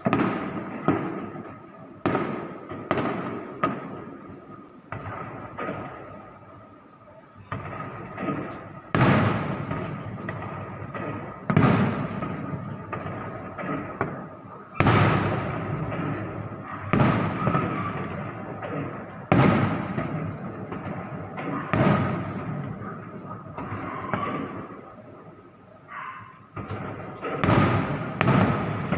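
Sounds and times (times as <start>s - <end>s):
small firework pops: 0.0s - 6.6s, 7.4s - 25.0s, 26.1s - 28.9s
fireworks booming: 0.0s - 28.9s.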